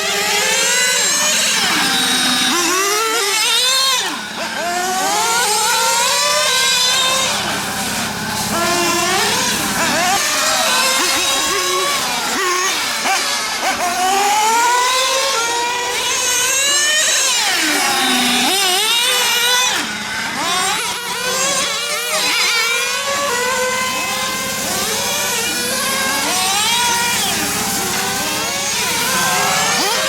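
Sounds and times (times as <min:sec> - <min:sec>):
rc car engines whining: 0:00.0 - 0:30.0.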